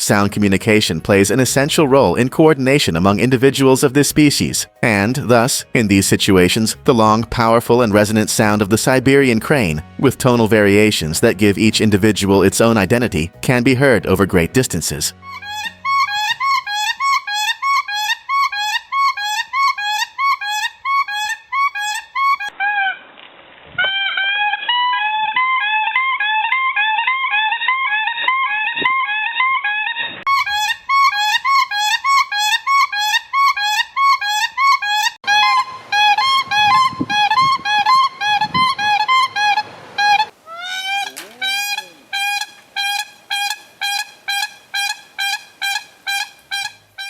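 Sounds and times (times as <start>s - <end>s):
cranes calling: 15.2s - 23.0s, 23.8s - 47.0s.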